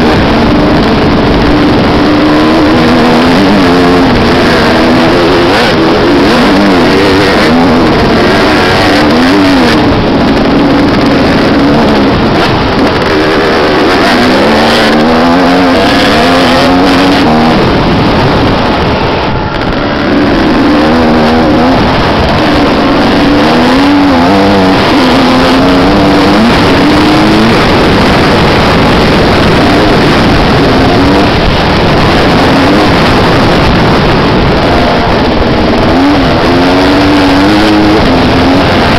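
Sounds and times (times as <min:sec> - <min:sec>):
motocross engines revving: 0:00.0 - 0:38.9.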